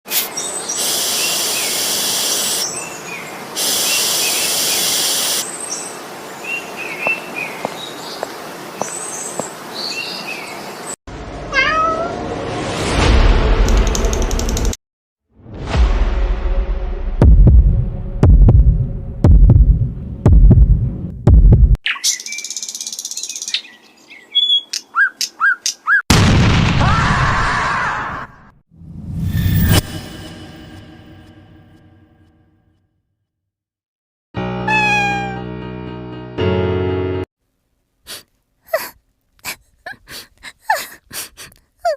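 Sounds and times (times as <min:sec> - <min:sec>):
loud high hiss: 0:00.7 - 0:02.7, 0:03.4 - 0:05.5
small bird chirping: 0:21.8 - 0:26.0
loud noisy boom: 0:26.1 - 0:27.5.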